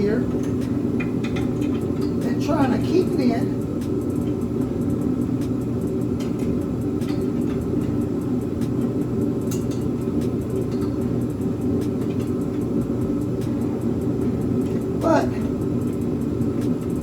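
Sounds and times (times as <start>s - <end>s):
hand tools tapping on metal: 0.0s - 2.8s, 6.1s - 16.0s
low background drone: 0.0s - 17.0s.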